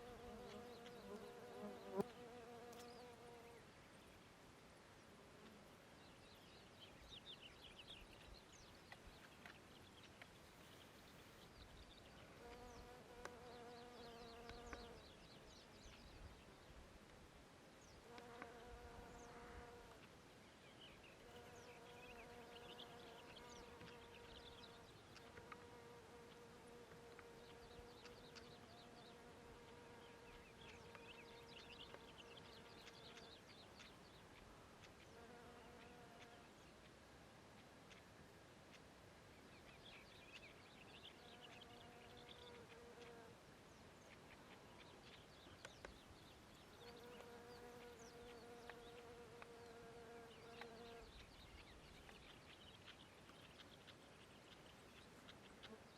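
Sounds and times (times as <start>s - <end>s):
flying insect buzzing: 0.0s - 3.6s.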